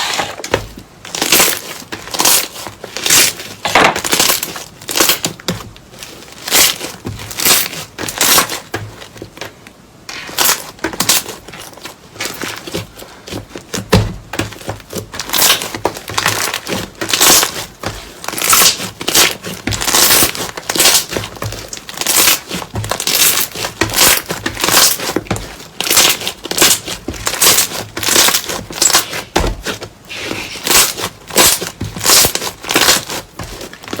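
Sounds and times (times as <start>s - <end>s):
slime squelching: 10.1s - 34.0s.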